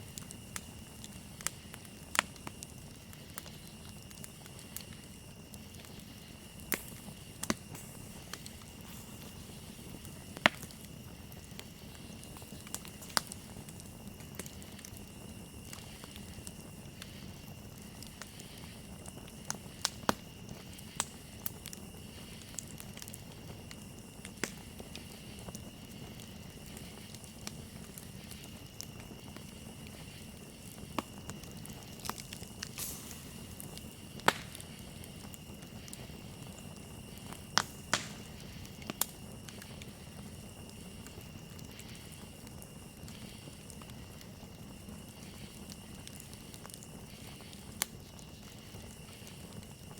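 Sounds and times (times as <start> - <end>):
campfire crackling and popping: 0.0 - 49.9
cricket trill: 0.0 - 49.9.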